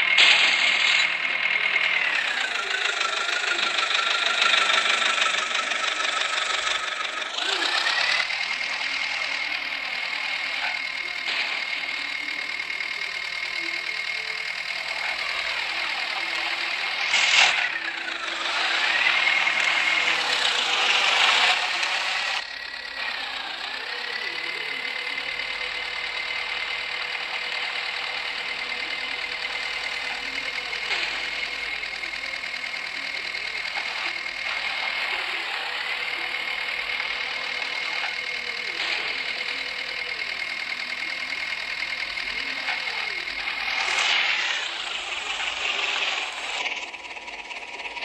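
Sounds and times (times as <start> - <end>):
tractor engine at high revs: 0.0 - 48.0.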